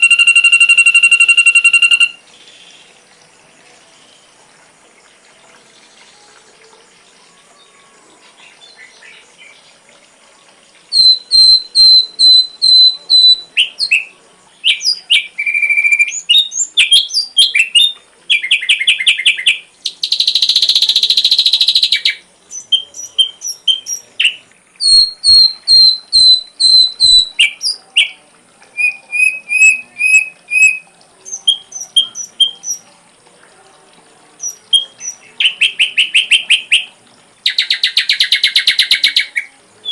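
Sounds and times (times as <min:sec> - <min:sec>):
bird chattering: 0:00.0 - 0:02.2
harsh rasping bird call: 0:00.0 - 0:02.2, 0:28.8 - 0:32.8
bird whistled song: 0:00.0 - 0:02.9, 0:10.9 - 0:32.9, 0:34.4 - 0:39.9
faint hiss: 0:00.0 - 0:39.9.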